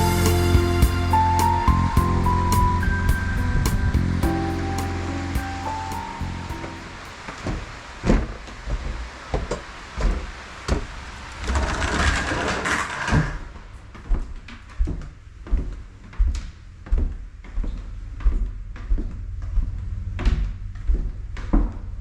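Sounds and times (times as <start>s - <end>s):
rushing hiss: 0.0s - 7.4s.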